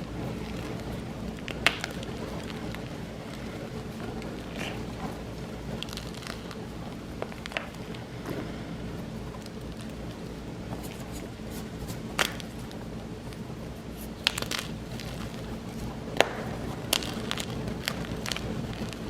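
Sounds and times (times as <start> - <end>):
chalk blocks crunching: 0.0 - 8.7, 9.3 - 19.0
steady low background noise: 0.0 - 19.0.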